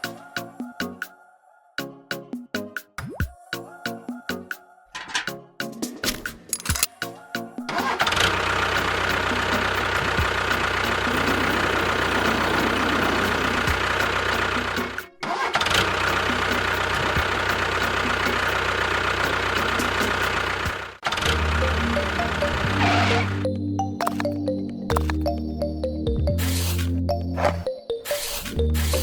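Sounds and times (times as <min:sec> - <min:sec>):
engine running: 0:07.9 - 0:25.6, 0:26.6 - 0:27.7.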